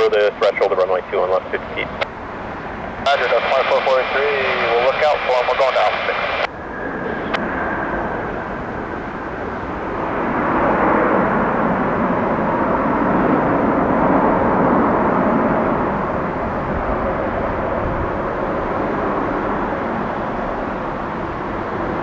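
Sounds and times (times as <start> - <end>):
jet engines rushing rumble: 0.0 - 22.0.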